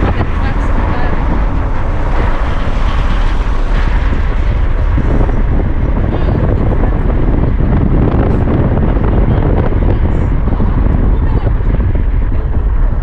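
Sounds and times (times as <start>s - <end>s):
car engine and tyre rumble: 0.0s - 13.0s
wind buffeting microphone: 0.0s - 13.0s.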